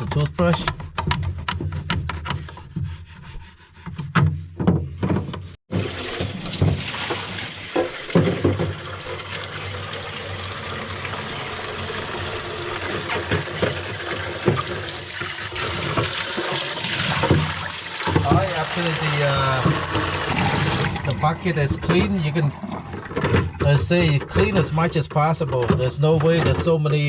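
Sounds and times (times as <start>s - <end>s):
toothbrush scrubbing plastic bucket: 0.0s - 4.4s, 5.7s - 27.0s
tap water splashing into bucket: 5.7s - 23.7s.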